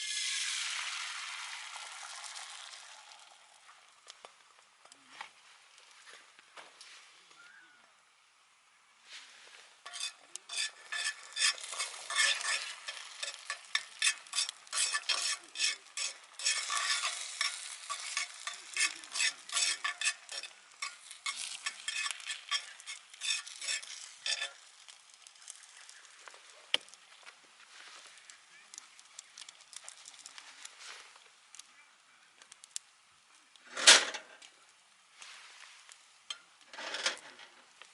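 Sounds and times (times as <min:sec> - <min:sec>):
food sizzling in a hot pan: 0:00.0 - 0:04.1, 0:08.1 - 0:31.6, 0:34.9 - 0:36.7
metal utensil scraping a pan: 0:09.8 - 0:25.9, 0:33.7 - 0:34.4, 0:36.3 - 0:37.6.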